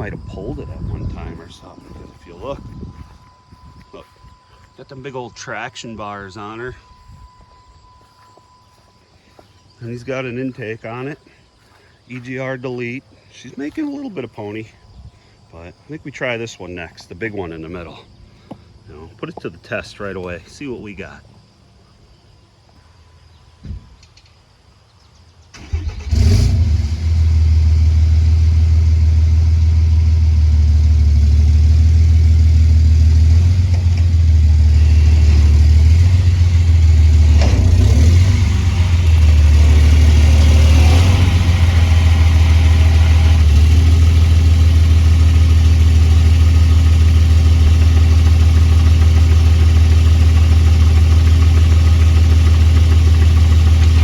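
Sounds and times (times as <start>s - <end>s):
diesel pickup engine running: 0.0s - 14.8s, 25.6s - 54.0s.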